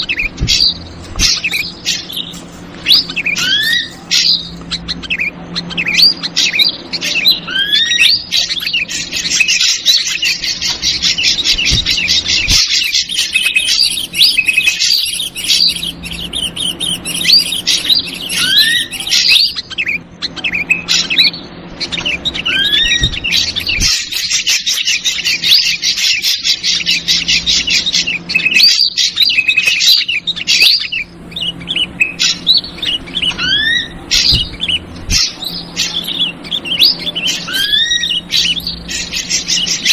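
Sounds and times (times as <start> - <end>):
bulbul chattering chorus: 0.0 - 39.9
drongo rising whistles: 12.8 - 19.5.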